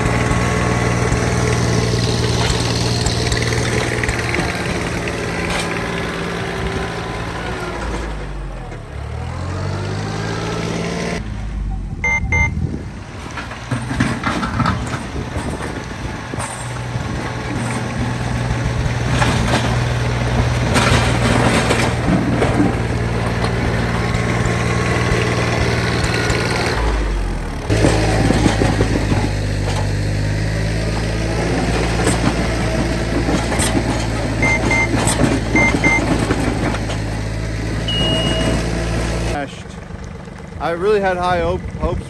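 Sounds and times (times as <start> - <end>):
tractor diesel engine running: 0.0 - 42.0
short double beeps: 11.6 - 12.8, 34.4 - 35.0, 37.9 - 38.8.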